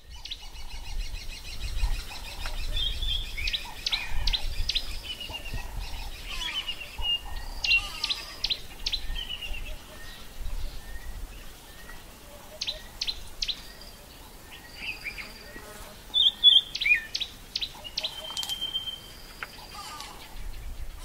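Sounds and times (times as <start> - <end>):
birds chirping: 0.0 - 21.0
thin held bird whistle: 18.0 - 19.1.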